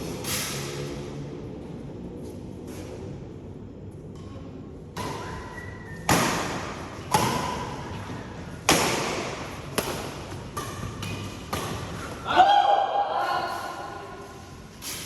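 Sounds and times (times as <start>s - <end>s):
rackets striking shuttlecock: 4.2s - 12.2s.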